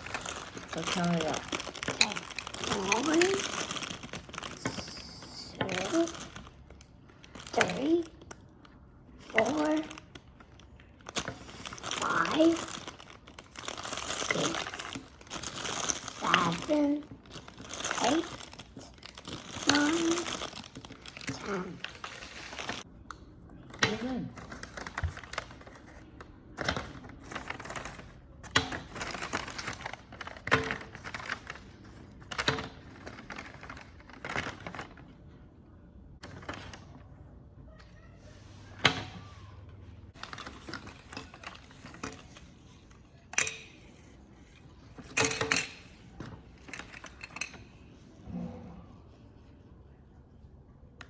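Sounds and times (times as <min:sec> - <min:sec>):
plastic bags crinkling: 0:00.0 - 0:07.7, 0:09.8 - 0:22.9
plastic toys clattering: 0:00.0 - 0:08.3, 0:09.3 - 0:22.8, 0:44.8 - 0:47.9.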